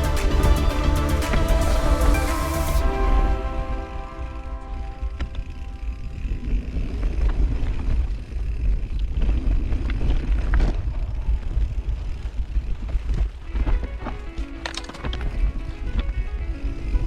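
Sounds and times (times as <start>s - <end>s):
bike tyre and frame noise: 0.0s - 17.0s
bike knocks and rattles: 7.0s - 16.2s.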